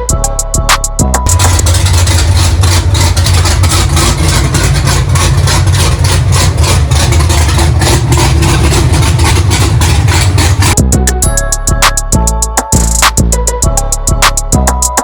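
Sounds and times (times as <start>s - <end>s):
loud car engine running: 1.2s - 11.1s.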